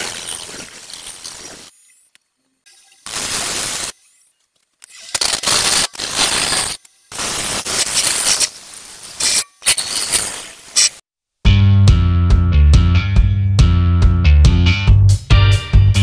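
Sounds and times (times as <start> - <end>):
music: 11.4 - 16.0.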